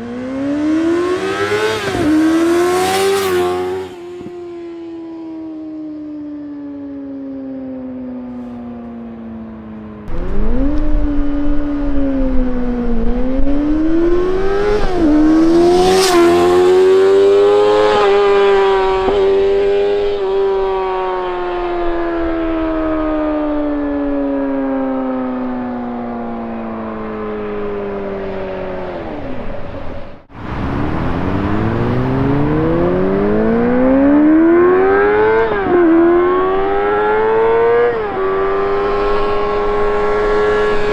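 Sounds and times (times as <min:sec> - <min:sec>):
motorcycle engine revving: 0:00.0 - 0:04.8, 0:09.9 - 0:22.9, 0:30.2 - 0:40.9.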